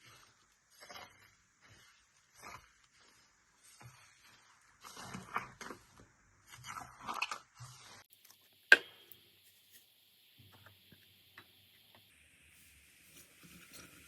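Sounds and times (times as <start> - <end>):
slime crackling and squelching: 0.0 - 8.3
steady hiss: 8.1 - 14.0.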